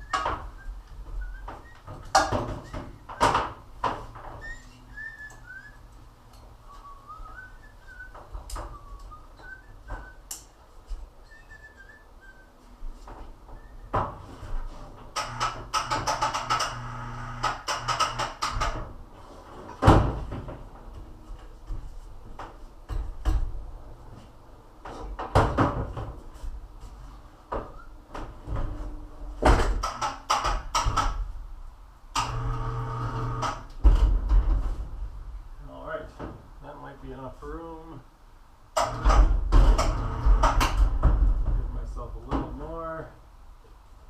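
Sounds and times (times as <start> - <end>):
clattering and knocking of objects: 0.0 - 4.5, 13.9 - 23.6, 24.8 - 26.6, 27.5 - 31.3, 33.2 - 35.2, 38.8 - 42.6.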